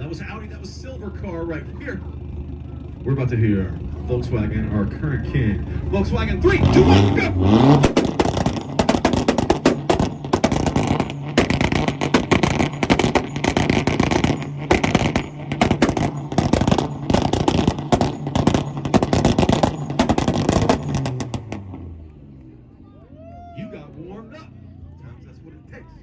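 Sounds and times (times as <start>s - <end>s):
car engine droning: 0.0s - 26.0s
exhaust popping and crackling: 3.8s - 22.2s.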